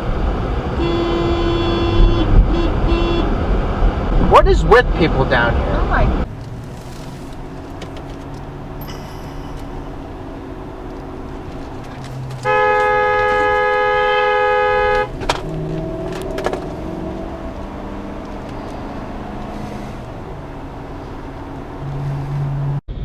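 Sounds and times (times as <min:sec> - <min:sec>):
car road and engine noise: 0:00.0 - 0:23.0
two-note car horn blast: 0:00.8 - 0:03.4, 0:12.4 - 0:15.2.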